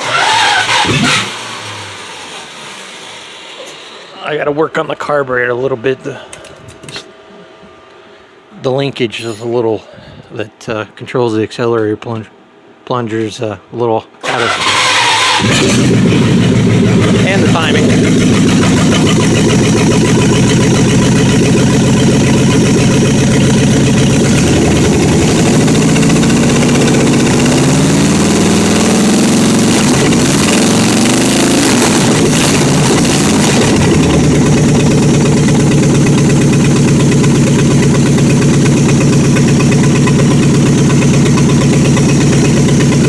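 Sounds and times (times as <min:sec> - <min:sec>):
car engine idling and revving: 0:00.0 - 0:03.9, 0:14.3 - 0:43.0.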